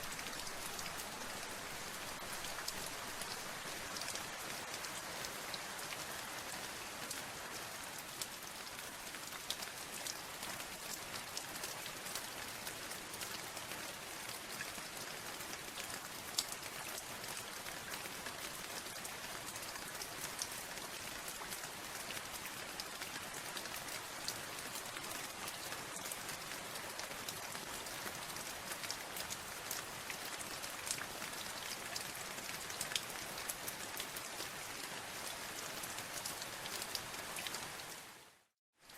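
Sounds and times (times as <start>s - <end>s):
rain pattering on a surface: 0.0s - 38.9s.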